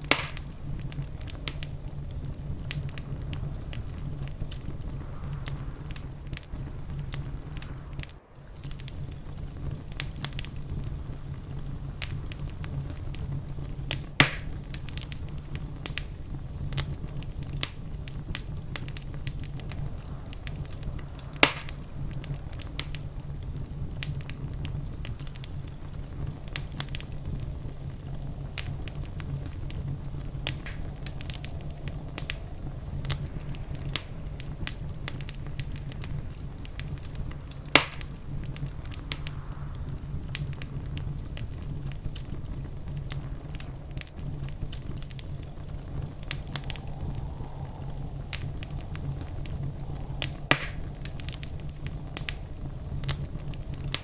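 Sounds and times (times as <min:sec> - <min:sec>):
loud pops of fire: 0:00.0 - 0:54.0
low rumble of flame: 0:00.0 - 0:54.0
wood fire crackling: 0:00.0 - 0:54.0.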